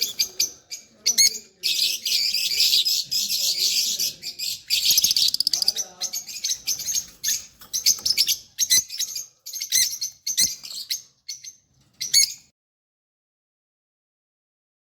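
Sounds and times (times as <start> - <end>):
lovebirds chirping shrilly: 0.0 - 12.5.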